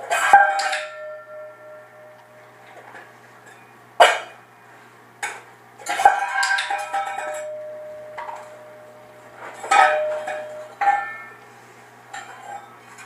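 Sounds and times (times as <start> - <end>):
metal clanking and ringing: 0.0 - 3.7, 5.8 - 11.4.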